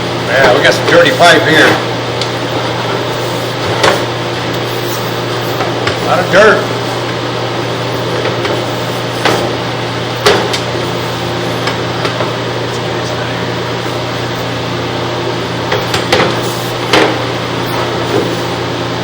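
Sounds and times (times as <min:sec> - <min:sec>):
low electrical hum: 0:00.0 - 0:19.0
sharp knocks: 0:08.0 - 0:12.3, 0:15.7 - 0:18.4.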